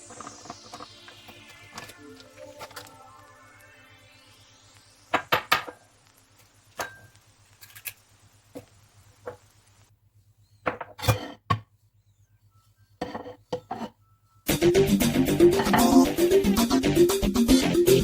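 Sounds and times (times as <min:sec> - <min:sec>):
utensils and dishes clinking: 0:15.5 - 0:16.1.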